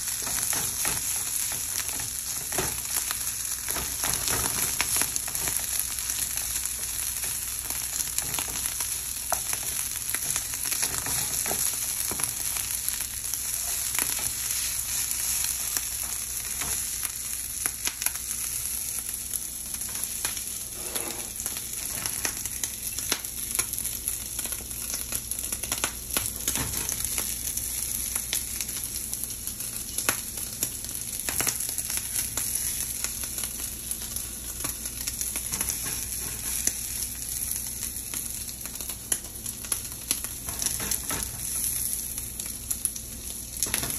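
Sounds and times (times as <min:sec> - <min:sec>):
rice sizzling in a frying pan: 0:00.0 - 0:43.9
spatula scraping a pan: 0:20.6 - 0:22.1.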